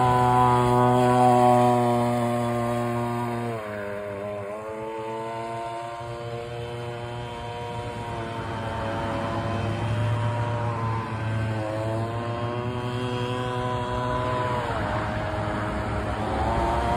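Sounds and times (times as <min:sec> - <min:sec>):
model gas engine running: 0:00.0 - 0:16.9.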